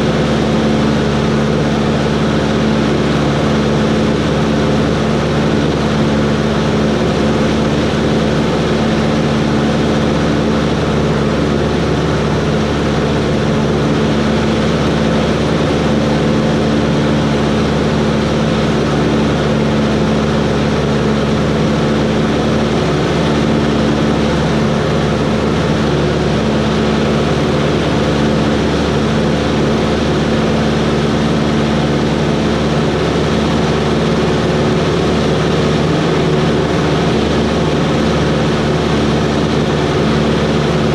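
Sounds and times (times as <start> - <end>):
propeller plane engine drone: 0.0 - 40.9.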